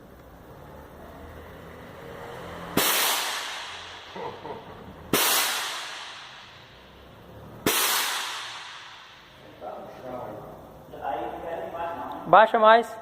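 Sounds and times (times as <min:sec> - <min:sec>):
air suspension hissing: 0:05.0 - 0:09.4.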